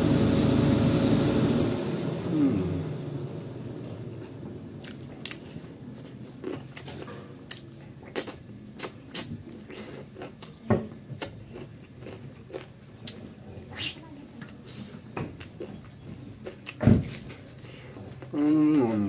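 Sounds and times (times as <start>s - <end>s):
person chewing food: 4.2s - 10.6s, 11.2s - 13.4s, 15.4s - 19.0s.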